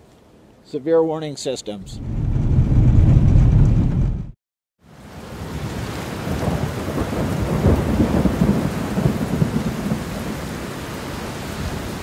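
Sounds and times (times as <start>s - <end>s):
storm wind buffeting microphone: 1.8s - 4.4s.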